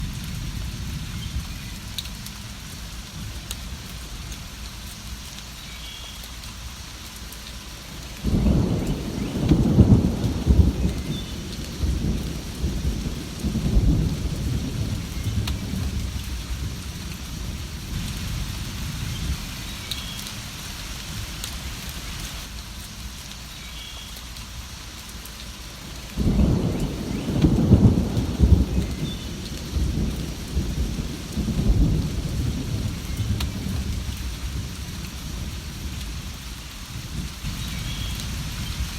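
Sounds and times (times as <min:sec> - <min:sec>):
steady rain: 0:00.0 - 0:38.9
thunder rumbling: 0:08.2 - 0:20.5, 0:26.1 - 0:38.9.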